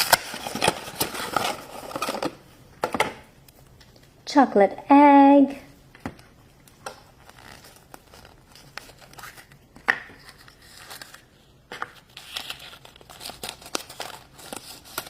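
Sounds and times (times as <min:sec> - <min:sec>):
foil wrapper crinkling and tearing: 0:00.0 - 0:02.4, 0:07.1 - 0:11.4, 0:12.0 - 0:15.0.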